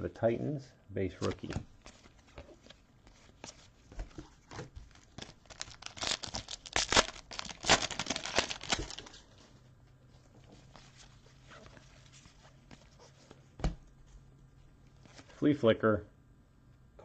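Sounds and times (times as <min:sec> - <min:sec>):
foil wrapper crinkling and tearing: 0:04.8 - 0:09.3.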